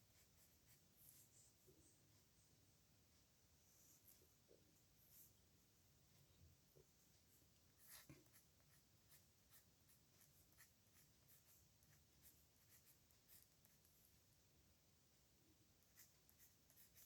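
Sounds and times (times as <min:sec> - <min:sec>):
pen scratching on paper: 0:07.7 - 0:14.0, 0:15.9 - 0:17.0.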